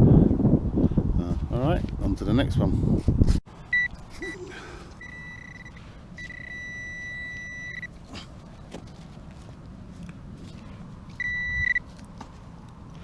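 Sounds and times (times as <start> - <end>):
metal detector beeps and tone: 3.7 - 4.4, 5.0 - 7.9, 11.2 - 11.8.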